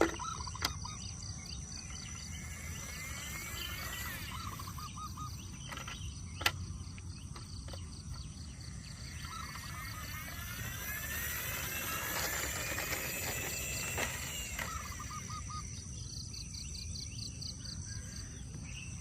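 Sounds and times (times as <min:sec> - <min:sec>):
insects chirring: 0:00.0 - 0:19.0
short bird calls: 0:14.6 - 0:15.8.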